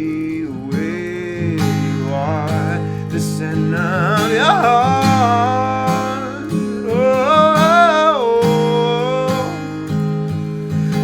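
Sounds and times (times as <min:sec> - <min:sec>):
strummed acoustic guitar: 0:00.0 - 0:11.0
wordless gliding singing: 0:00.0 - 0:11.0.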